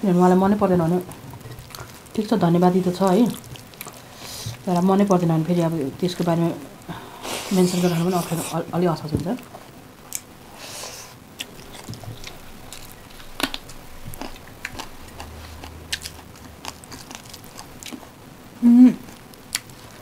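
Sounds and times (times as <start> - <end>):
people chewing food: 0.9 - 5.9, 9.4 - 20.0
person humming: 6.9 - 8.6, 18.6 - 19.2.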